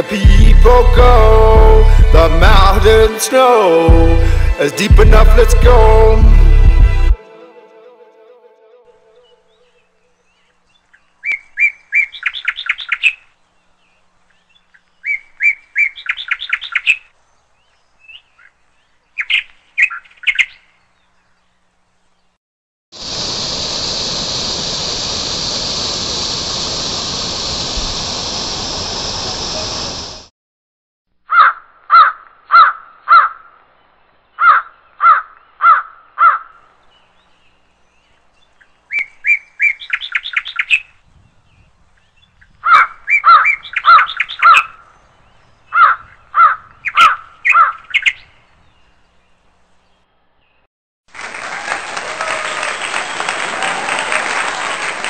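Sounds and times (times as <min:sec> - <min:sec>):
bird calling: 0:09.0 - 0:13.4, 0:14.3 - 0:17.1, 0:17.7 - 0:21.4, 0:34.3 - 0:41.0, 0:41.6 - 0:49.2.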